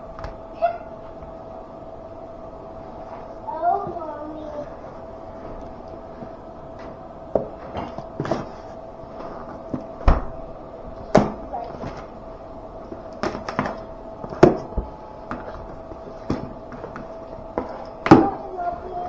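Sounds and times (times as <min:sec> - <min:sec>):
faint steady hum: 0:00.0 - 0:19.0
packaging knocks and rustles: 0:05.4 - 0:12.2, 0:12.8 - 0:19.0.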